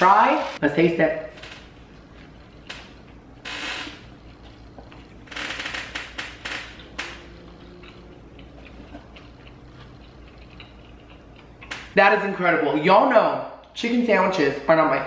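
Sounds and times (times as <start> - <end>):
crunchy chewing: 1.6 - 11.9.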